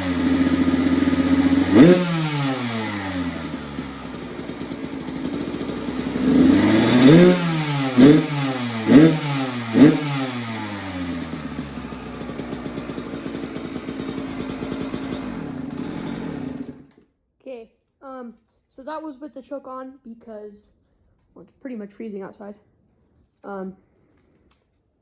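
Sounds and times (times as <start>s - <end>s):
dirt bike engine revving and idling: 0.0s - 17.0s.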